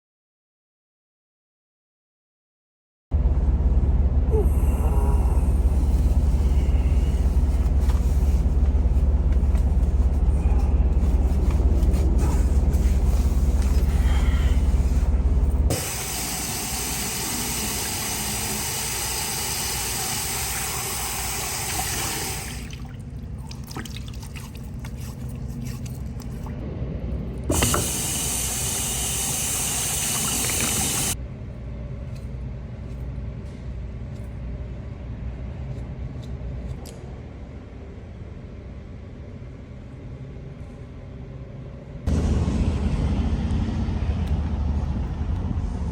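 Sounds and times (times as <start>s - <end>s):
truck engine rumble: 3.2s - 17.6s, 42.1s - 45.9s.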